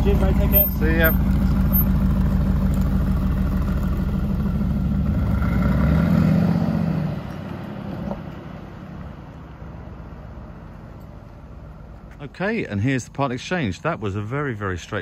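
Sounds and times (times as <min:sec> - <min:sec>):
car engine and exhaust pulling away: 0:00.0 - 0:14.0.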